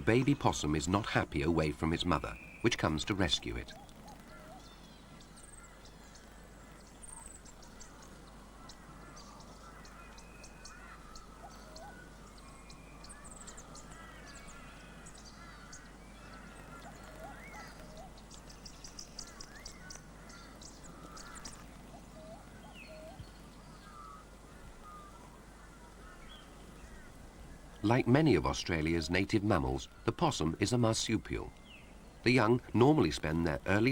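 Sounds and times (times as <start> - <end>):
small hooked calls: 0.0 - 33.9.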